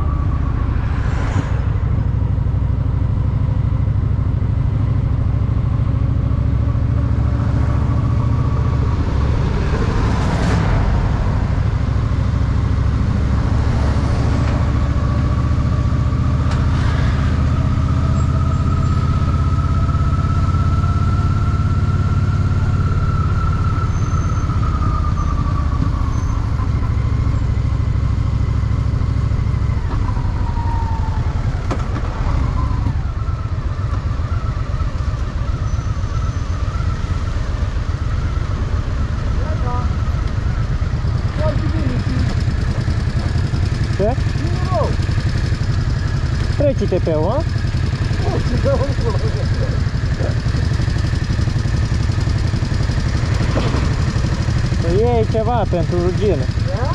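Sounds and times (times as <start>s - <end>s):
high whine: 0.0s - 4.0s
motorcycle engine rumbling: 0.0s - 56.9s.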